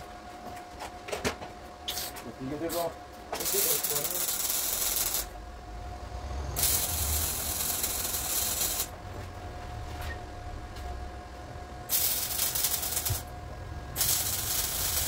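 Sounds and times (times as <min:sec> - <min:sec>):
compressed air hissing: 0:06.6 - 0:08.9, 0:11.9 - 0:13.2, 0:14.0 - 0:15.0.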